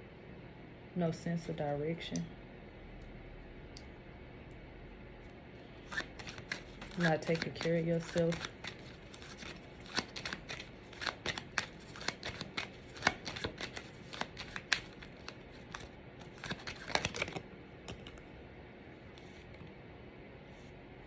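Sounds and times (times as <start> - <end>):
cards being shuffled: 5.8 - 18.2.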